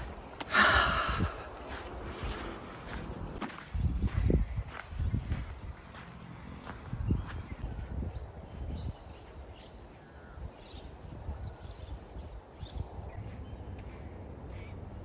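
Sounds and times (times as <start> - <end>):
wind rumble on microphone: 0.0 - 15.0
wild birds chirping: 4.3 - 15.0.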